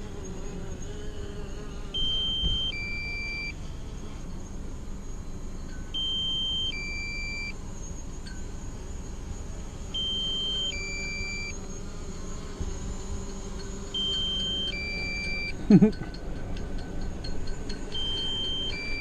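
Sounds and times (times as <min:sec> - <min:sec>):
electronic two-tone warning beep: 0:02.0 - 0:03.6, 0:05.9 - 0:07.6, 0:10.0 - 0:11.6, 0:14.0 - 0:15.6, 0:17.9 - 0:19.0.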